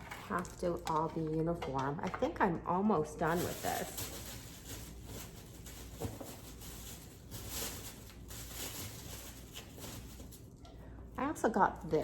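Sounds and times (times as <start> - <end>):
dry twigs rustling and crackling: 3.2 - 10.7.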